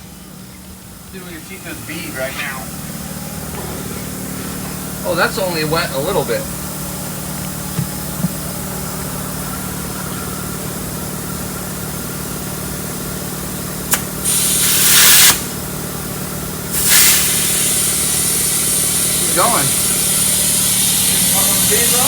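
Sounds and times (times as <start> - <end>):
steady low hum: 0.0 - 22.0
compressed air hissing into tire: 13.8 - 15.8, 16.7 - 22.0.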